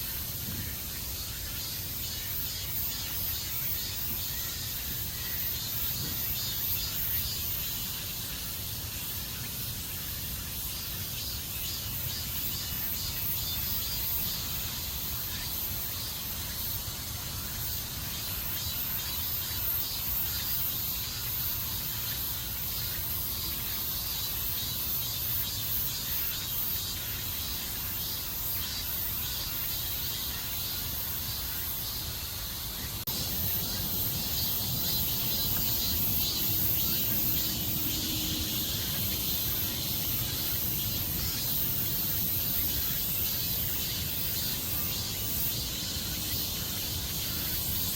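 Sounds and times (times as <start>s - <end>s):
insects shrilling: 23.8s - 47.9s.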